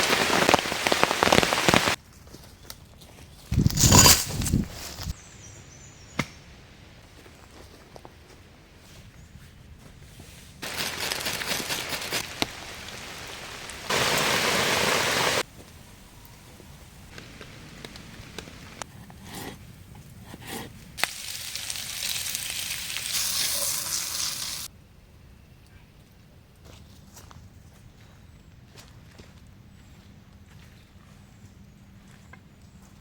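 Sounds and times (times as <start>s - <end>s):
rain falling: 0.0s - 2.0s, 10.6s - 15.8s, 16.4s - 18.8s.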